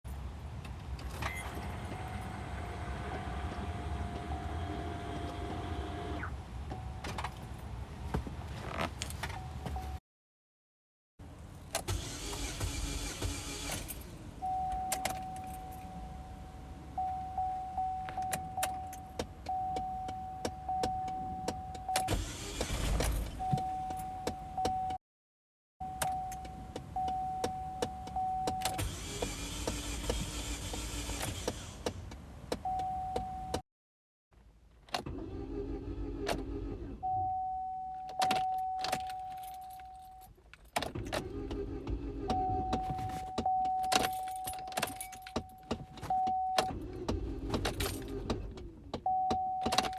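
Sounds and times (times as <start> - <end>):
car engine cranking: 11.7 - 14.4, 21.8 - 23.5, 28.5 - 32.2, 34.9 - 37.2, 40.4 - 49.9.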